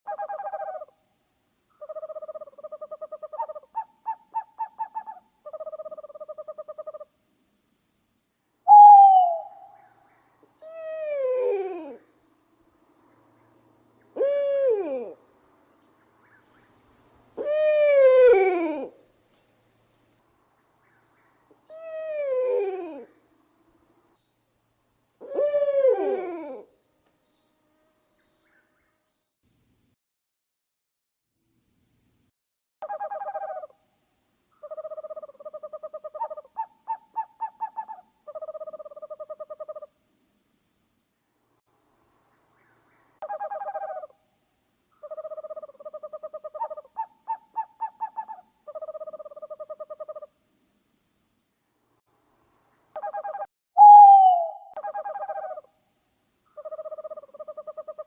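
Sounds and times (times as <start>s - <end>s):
owl calling: 0.1s - 1.0s, 1.8s - 7.1s, 8.7s - 12.0s, 14.1s - 15.2s, 17.4s - 18.9s, 32.8s - 33.8s, 34.6s - 39.9s, 43.2s - 44.1s, 45.0s - 50.3s, 53.0s - 55.7s, 56.5s - 58.0s
faint high whine: 7.3s - 29.9s.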